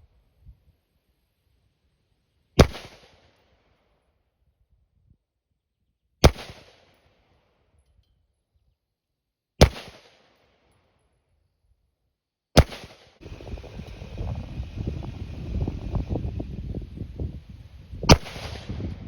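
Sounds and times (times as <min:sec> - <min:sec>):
rifle shots echoing: 0:02.6 - 0:03.2, 0:09.6 - 0:10.2, 0:18.1 - 0:19.0
steady rumbling noise: 0:13.2 - 0:19.0.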